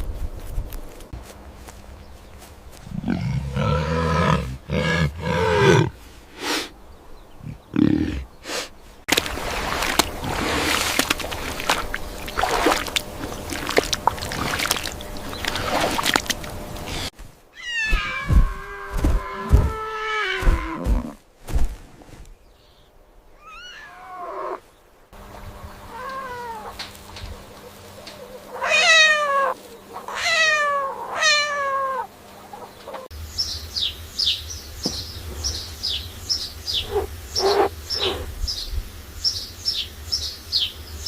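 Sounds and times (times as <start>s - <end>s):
cat meowing: 17.6s - 20.5s, 23.4s - 24.2s, 28.6s - 32.1s
small bird chirping: 32.5s - 41.0s.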